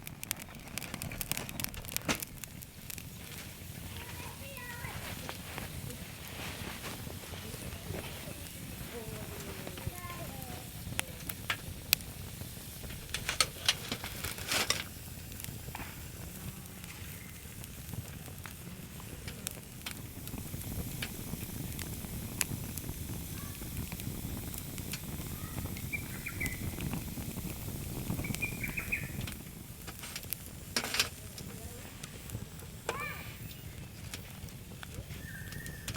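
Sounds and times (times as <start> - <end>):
low steady rumble: 0.0 - 35.9
wood fire crackling: 0.0 - 35.9.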